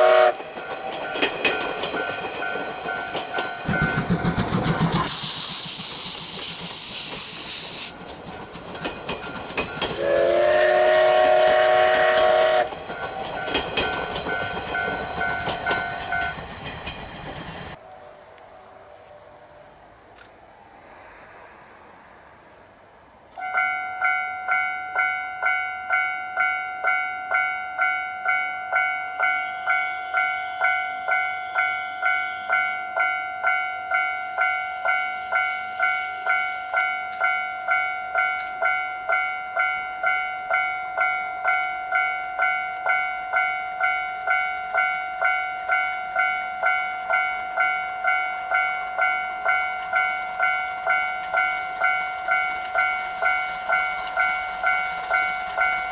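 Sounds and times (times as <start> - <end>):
level crossing warning bell: 0.0 - 4.6, 11.6 - 18.0, 23.4 - 55.9.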